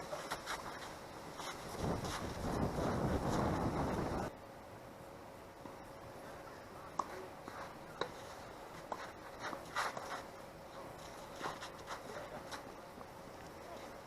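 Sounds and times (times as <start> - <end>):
soft scuffs: 0.0 - 2.6, 7.5 - 12.7.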